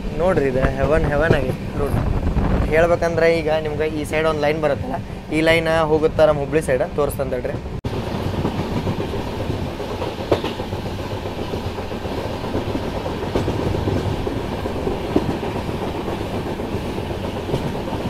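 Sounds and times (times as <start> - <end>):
train rumbling on track: 0.0 - 18.0
wheels clicking over rail joints: 8.2 - 18.0.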